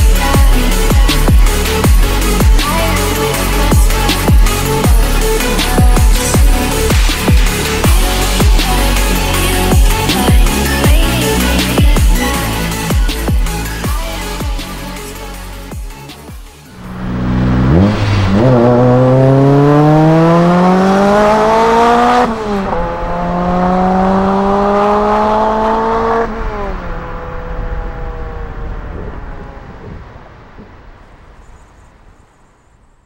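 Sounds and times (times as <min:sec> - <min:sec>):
pickup engine accelerating hard: 0:16.7 - 0:31.3.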